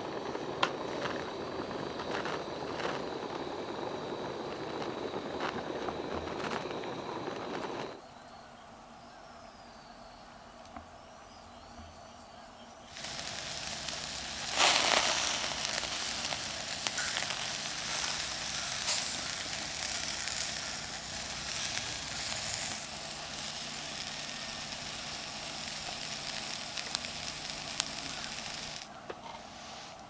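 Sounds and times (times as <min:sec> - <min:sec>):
crackling pops: 0:00.0 - 0:08.0, 0:12.9 - 0:29.0
food sizzling over campfire: 0:00.0 - 0:08.0, 0:12.9 - 0:28.9.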